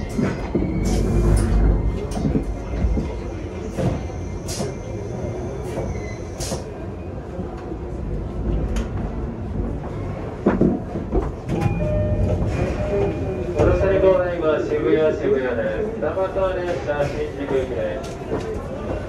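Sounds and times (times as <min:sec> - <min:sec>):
train cabin rumble: 0:00.0 - 0:14.7.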